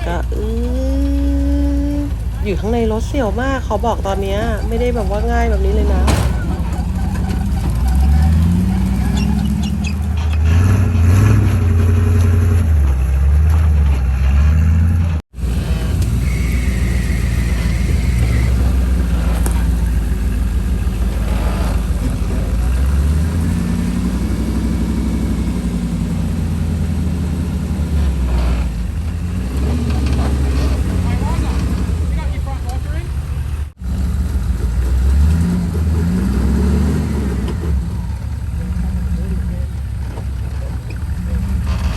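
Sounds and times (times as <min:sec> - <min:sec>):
truck engine revving: 0:00.0 - 0:41.9.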